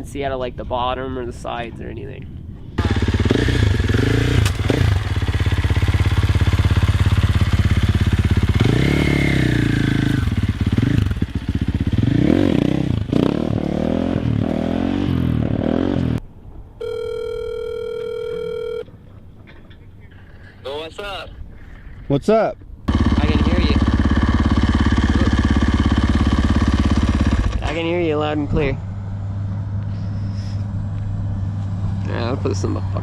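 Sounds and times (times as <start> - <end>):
dirt bike engine revving: 2.8 - 16.2, 22.9 - 27.8
telephone call tone: 16.8 - 18.9.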